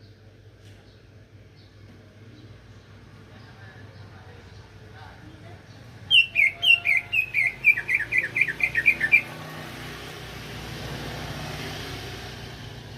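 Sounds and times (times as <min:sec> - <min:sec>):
bird whistling song: 0:06.1 - 0:09.3.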